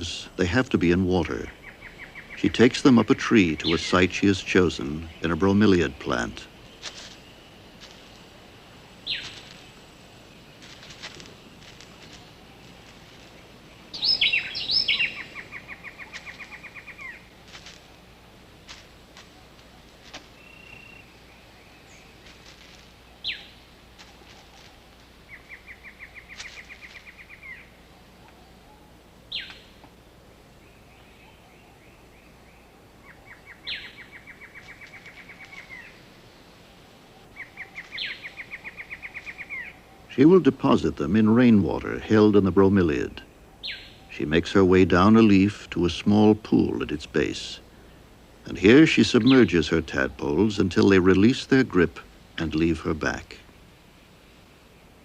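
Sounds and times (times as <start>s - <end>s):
steady low hum: 0.0s - 55.0s
high chirps: 1.4s - 17.4s.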